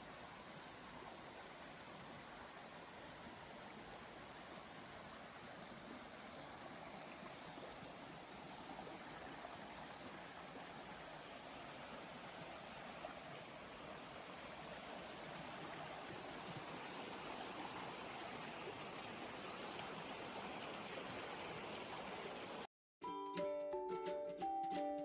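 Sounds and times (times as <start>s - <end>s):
music with sustained notes: 23.0s - 25.0s.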